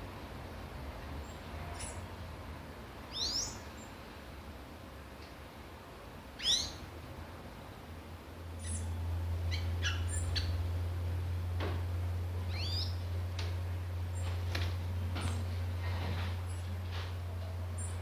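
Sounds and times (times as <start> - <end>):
low steady hum: 0.0 - 18.0
small birds chirping: 1.2 - 2.2, 3.1 - 4.0, 6.4 - 6.9, 8.6 - 10.7, 12.4 - 13.2, 14.0 - 14.5, 16.4 - 16.8, 17.4 - 18.0.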